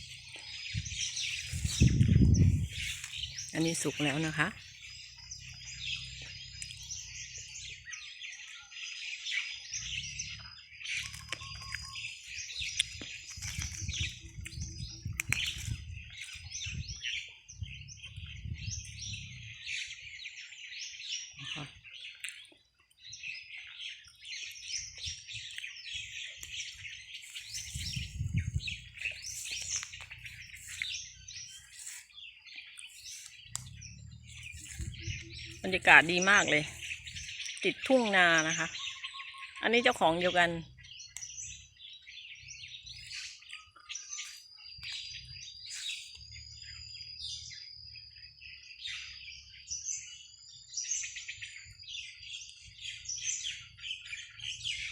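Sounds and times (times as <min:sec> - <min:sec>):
flock of small birds chirping: 0:00.0 - 0:54.9
low rumbles: 0:27.6 - 0:31.7, 0:33.2 - 0:37.6.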